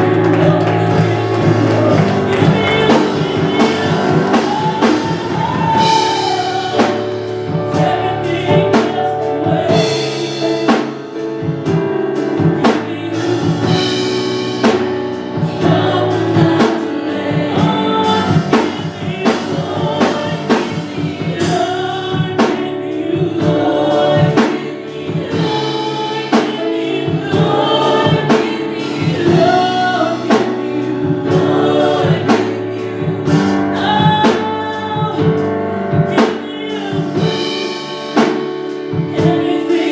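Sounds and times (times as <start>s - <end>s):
band playing: 0.0s - 39.9s
drum kit beat: 0.0s - 39.9s
voices singing together: 0.0s - 39.9s.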